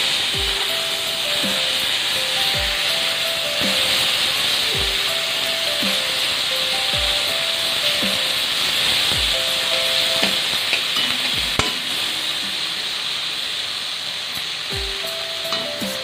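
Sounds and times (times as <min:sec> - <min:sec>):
background music: 0:00.0 - 0:16.0
fish sizzling in hot oil: 0:00.0 - 0:16.0.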